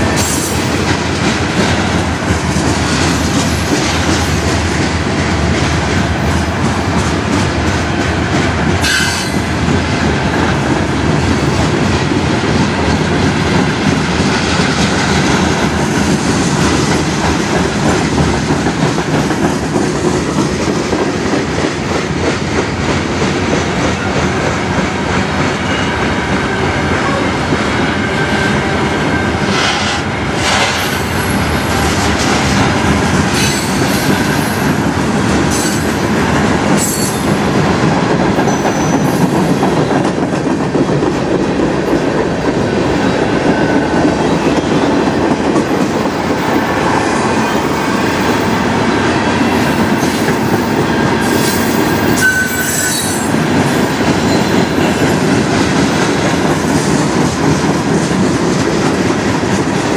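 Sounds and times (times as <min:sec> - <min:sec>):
rail joint clicks: 0:00.0 - 0:27.6, 0:28.7 - 0:59.9
freight train wheels rumbling: 0:00.0 - 0:59.9
wheel squeals: 0:51.3 - 0:53.2.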